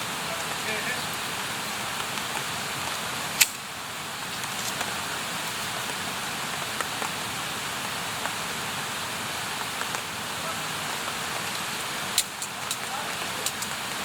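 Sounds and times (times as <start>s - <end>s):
campfire hissing and crackling: 0.0s - 14.0s
loud sharp pop of fire: 3.4s - 3.6s.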